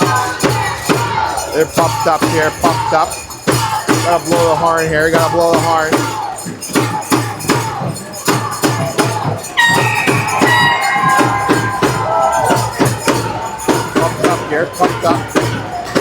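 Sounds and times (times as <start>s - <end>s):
music over sound system: 0.0s - 16.0s
shaker-like percussion: 0.0s - 16.0s
held melody line: 9.6s - 15.3s.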